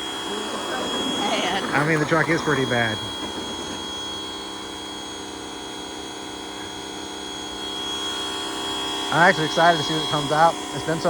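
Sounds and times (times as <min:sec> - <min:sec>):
pressure washer running: 0:00.0 - 0:11.0.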